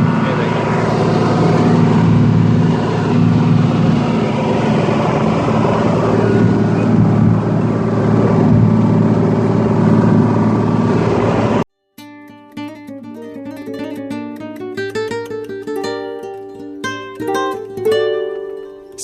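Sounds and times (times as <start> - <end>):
rushing noise: 0.0 - 11.6
motorboat engine droning: 0.0 - 11.7.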